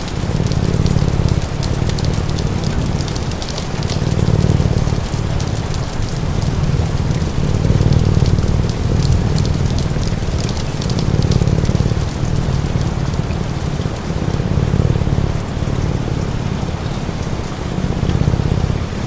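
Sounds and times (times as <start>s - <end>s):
log fire crackling and popping: 0.0s - 15.0s
steady rain: 0.0s - 19.0s
cat purring: 0.1s - 19.0s.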